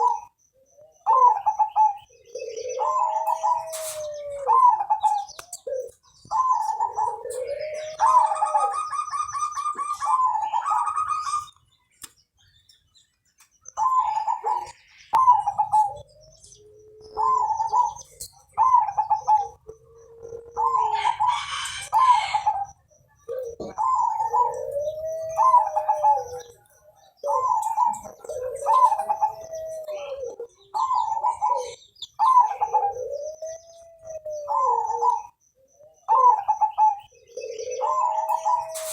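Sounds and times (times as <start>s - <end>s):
dove cooing: 0.0s - 11.6s, 13.7s - 38.9s
fast rolling bird trill: 0.0s - 11.6s, 13.6s - 26.6s, 34.4s - 38.9s.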